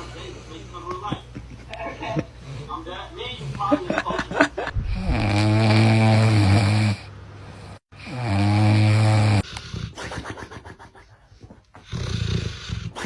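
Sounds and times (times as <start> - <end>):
person snoring: 4.8 - 7.1, 8.0 - 10.2, 11.8 - 13.0.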